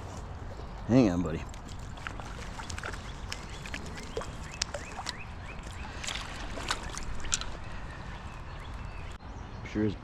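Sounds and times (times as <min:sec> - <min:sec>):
river water sloshing and splashing: 0:01.4 - 0:09.2.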